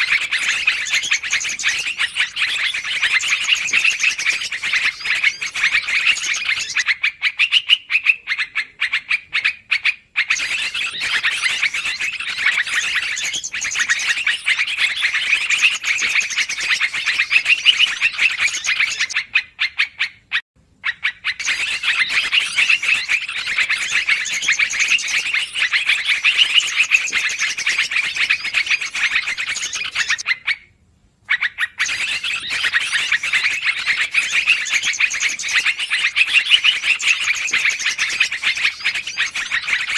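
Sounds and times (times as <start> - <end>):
bulbul chattering calls: 0.0 - 20.1, 20.8 - 30.6, 31.3 - 39.9.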